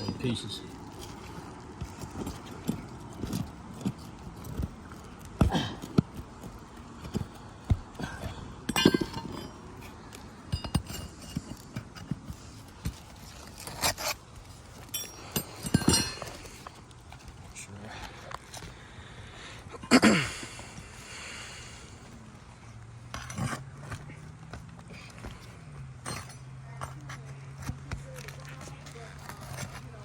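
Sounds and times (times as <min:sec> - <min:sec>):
pry bar clinking on nails: 0:14.8 - 0:16.5.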